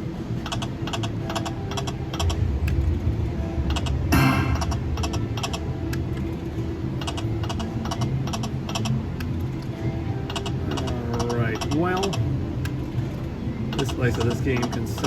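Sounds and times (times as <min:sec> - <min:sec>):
low casino hum: 0:00.0 - 0:15.0
slot machine ticks and chimes: 0:00.4 - 0:02.8, 0:03.7 - 0:09.5.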